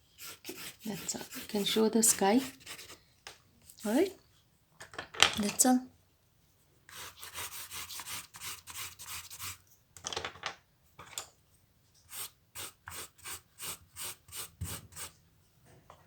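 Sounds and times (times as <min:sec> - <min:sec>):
colouring strokes scratching on paper: 0:00.1 - 0:03.0, 0:06.9 - 0:09.6, 0:12.1 - 0:15.2.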